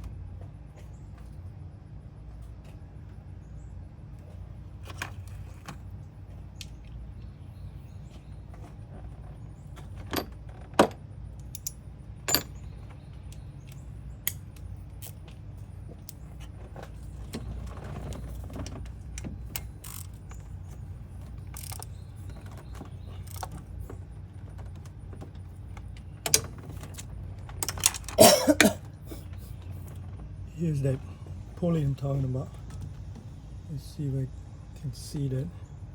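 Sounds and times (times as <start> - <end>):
low steady hum: 0.0 - 35.9
metal tools clinking: 11.4 - 12.7.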